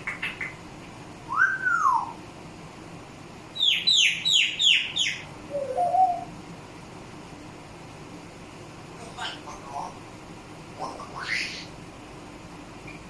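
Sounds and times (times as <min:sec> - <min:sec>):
parrot whistling and chirping: 0:01.3 - 0:02.2, 0:03.6 - 0:06.3.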